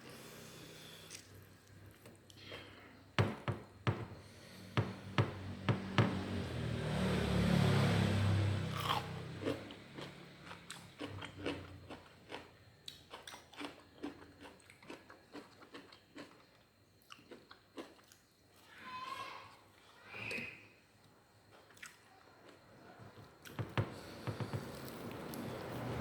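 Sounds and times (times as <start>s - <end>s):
person chewing crunchy food: 8.8s - 18.3s, 21.5s - 25.0s.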